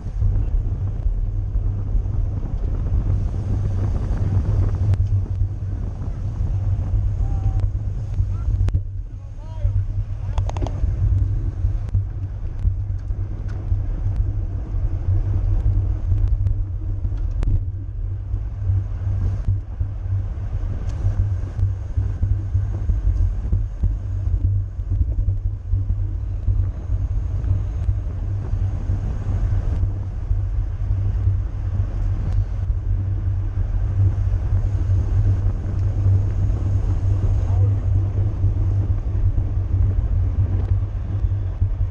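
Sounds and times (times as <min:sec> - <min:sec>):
wind buffeting microphone: 0:00.0 - 0:41.9
faint clicks: 0:04.9 - 0:05.4, 0:10.3 - 0:14.3.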